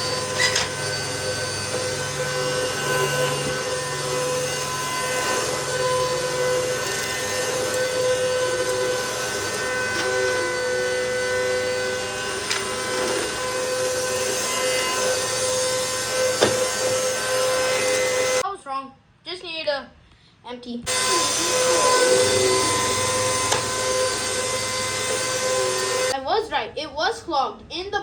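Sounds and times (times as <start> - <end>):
vacuum cleaner running: 0.0 - 18.4, 20.9 - 26.2.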